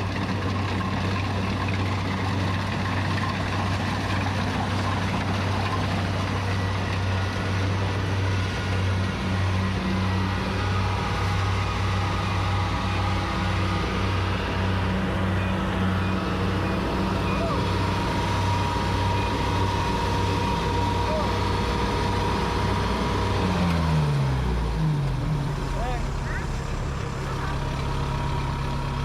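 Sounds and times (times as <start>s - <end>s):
harvester engine drone: 0.0s - 29.0s
machinery clatter and rattle: 0.0s - 29.0s.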